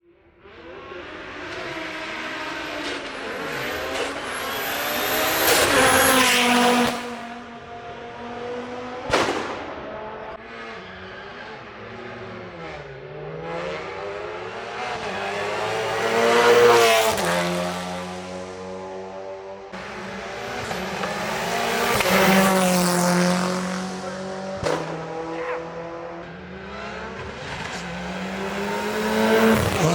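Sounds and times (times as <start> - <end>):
race car engines revving: 0.2 - 29.9
sharp crack: 9.1 - 10.3, 24.6 - 25.5.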